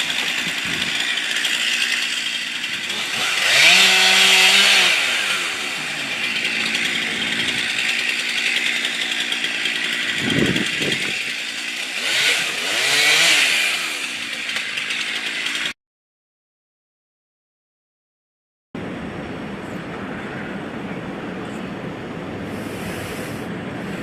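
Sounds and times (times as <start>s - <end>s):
chainsaw running and revving: 0.0s - 15.8s.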